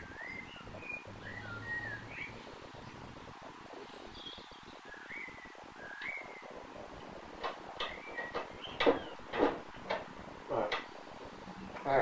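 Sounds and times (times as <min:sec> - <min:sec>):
small bird chirping: 0:00.0 - 0:06.7, 0:07.7 - 0:09.3.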